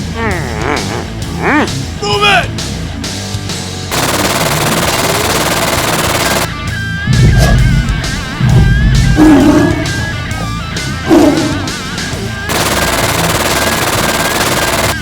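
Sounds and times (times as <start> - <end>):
action soundtrack music: 0.0 - 15.0
machine-gun fire: 3.9 - 6.5, 12.5 - 15.0.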